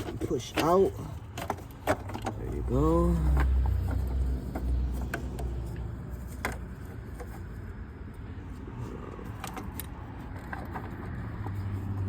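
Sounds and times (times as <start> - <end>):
clicks of plastic parts handled: 9.2 - 12.0.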